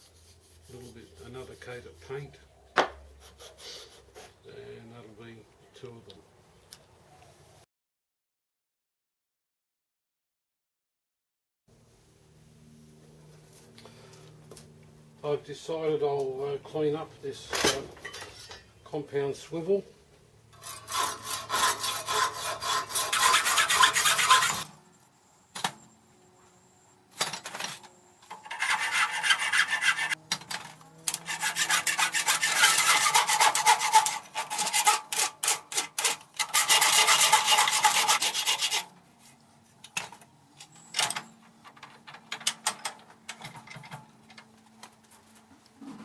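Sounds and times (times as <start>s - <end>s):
hand file rasping on metal: 0.0s - 2.2s, 20.6s - 24.7s, 28.3s - 30.2s, 31.1s - 38.9s.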